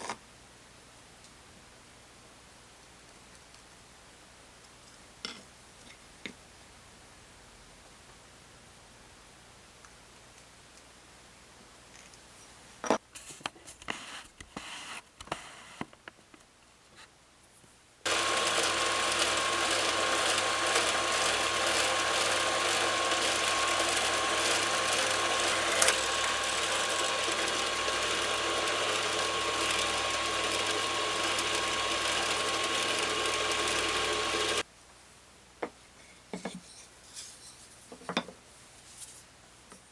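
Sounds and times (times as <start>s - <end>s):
small power tool whining: 18.1s - 34.6s.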